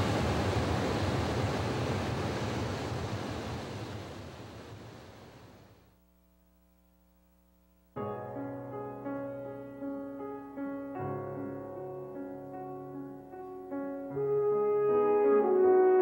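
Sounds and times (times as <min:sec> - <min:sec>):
steady rushing noise: 0:00.0 - 0:05.8
faint hum: 0:00.0 - 0:08.0.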